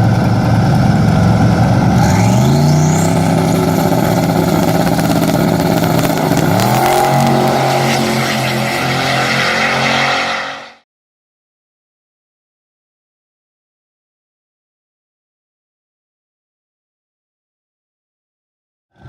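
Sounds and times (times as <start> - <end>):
engine revving: 0.0 - 10.8.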